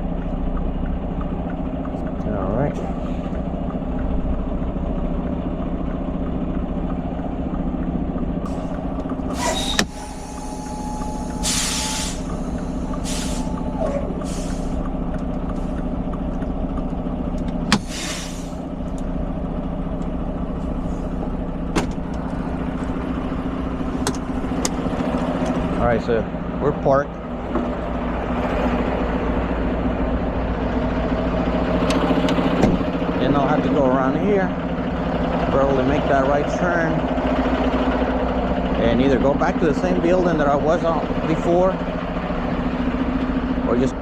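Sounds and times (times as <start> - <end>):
diesel truck engine running: 0.0 - 44.0
steady tone: 8.4 - 13.8, 22.5 - 31.8
air brakes hissing: 8.5 - 14.9, 17.7 - 18.8.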